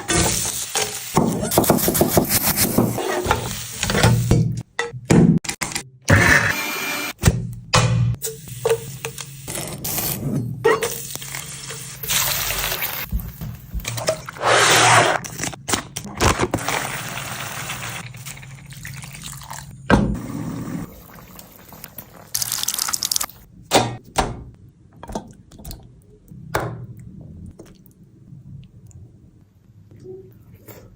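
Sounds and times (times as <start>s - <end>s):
water pouring and splashing: 11.0s - 14.4s, 16.5s - 19.8s, 20.8s - 23.4s.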